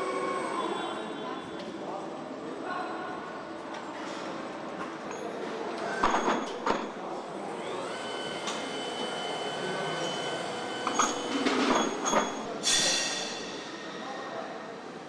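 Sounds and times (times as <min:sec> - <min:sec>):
metal clanks and knocks: 0:10.9 - 0:13.7.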